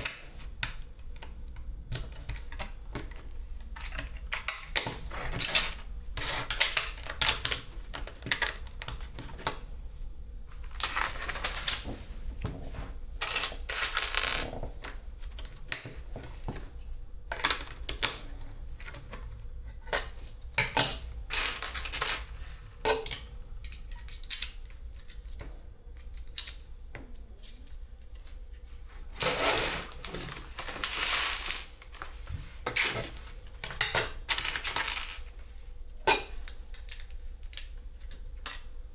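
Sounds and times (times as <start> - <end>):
loose plastic bricks clattering: 29.1 - 35.4.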